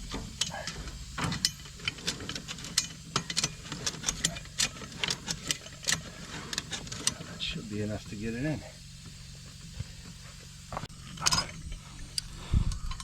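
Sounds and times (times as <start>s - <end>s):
ratchet metallic clicks: 0.0s - 7.3s
low engine hum: 0.0s - 13.0s.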